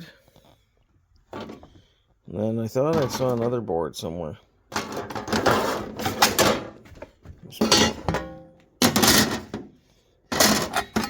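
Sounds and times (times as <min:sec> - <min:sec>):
metal parts clanking: 0:04.7 - 0:06.8, 0:07.6 - 0:09.6, 0:10.3 - 0:11.0.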